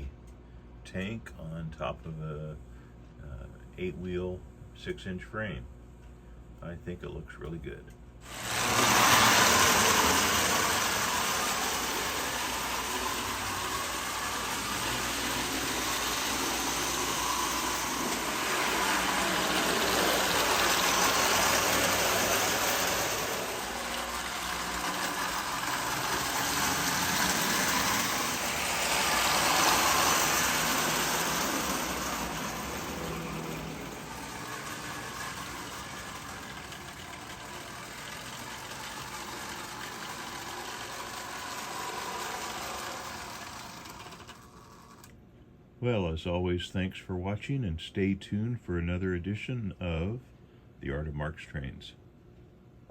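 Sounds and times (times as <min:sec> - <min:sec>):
toy train whirring clatter: 0:08.2 - 0:45.2.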